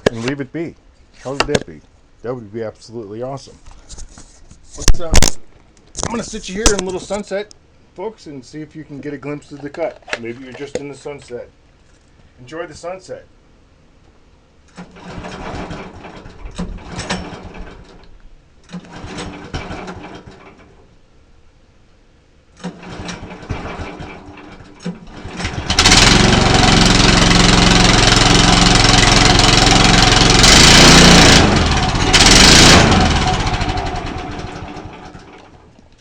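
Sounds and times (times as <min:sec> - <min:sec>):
small gasoline engine running: 0:14.7 - 0:18.0, 0:18.7 - 0:20.6, 0:22.6 - 0:35.6.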